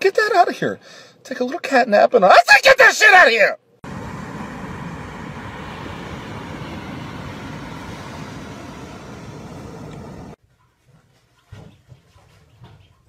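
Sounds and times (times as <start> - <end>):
wind rushing on microphone: 3.8 - 10.4.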